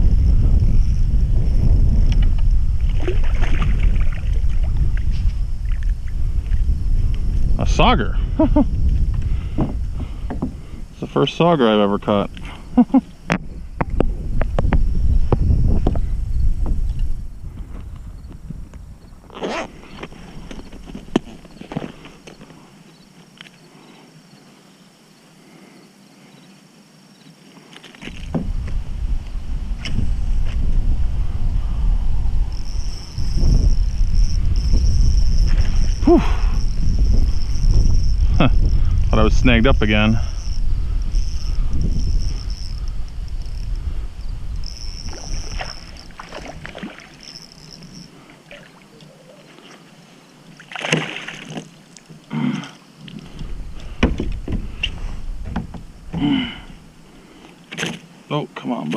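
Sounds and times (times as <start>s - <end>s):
loud low rumble: 0.0s - 2.9s
low water rumble: 0.0s - 12.1s, 28.2s - 49.6s
faint insect chirping: 0.0s - 58.9s
sharp knocks: 54.0s - 54.7s.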